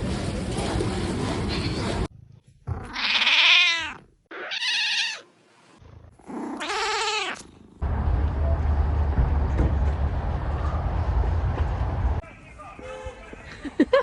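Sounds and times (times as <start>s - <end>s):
cat meowing: 2.8s - 5.2s, 6.5s - 7.5s.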